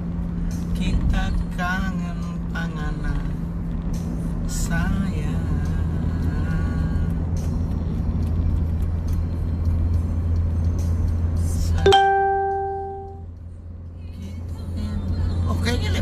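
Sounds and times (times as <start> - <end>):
car engine drone: 0.0 - 16.0
road noise: 0.0 - 16.0
bright chime: 11.9 - 13.2.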